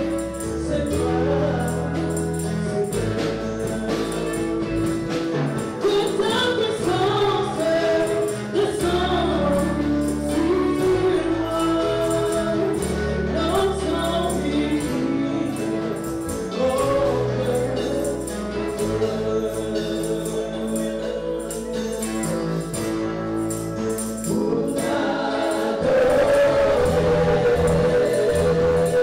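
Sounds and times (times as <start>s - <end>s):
bass and percussion: 0.0s - 29.0s
choir singing: 23.5s - 29.0s.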